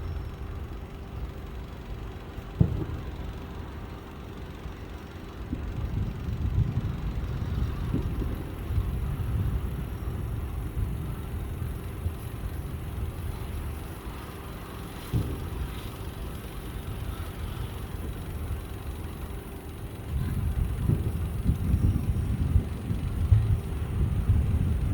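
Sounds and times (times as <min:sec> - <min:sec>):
distant fireworks booms: 0:02.6 - 0:03.0.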